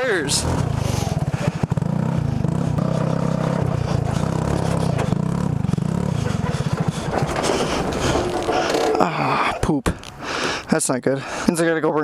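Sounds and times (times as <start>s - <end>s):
go-kart engine running: 0.0s - 9.5s
chassis knocks and rattles: 3.7s - 9.1s.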